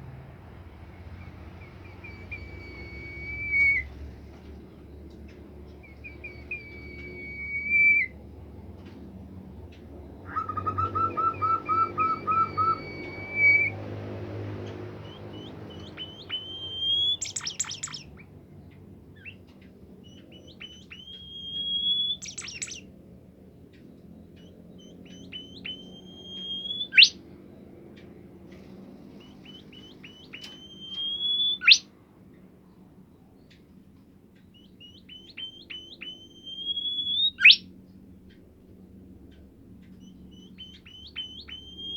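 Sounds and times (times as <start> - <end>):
songbird singing loudly: 1.1 - 4.0, 5.7 - 8.2, 10.2 - 13.9, 14.6 - 18.3, 19.2 - 22.8, 24.4 - 27.2, 28.6 - 31.9, 34.5 - 37.7, 39.8 - 41.9.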